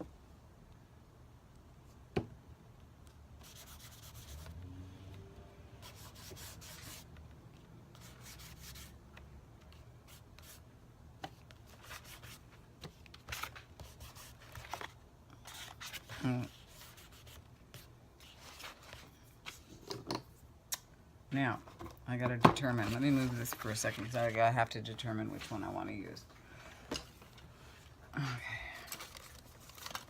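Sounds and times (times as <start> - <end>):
brush rubbing on paper: 5.8 - 7.1.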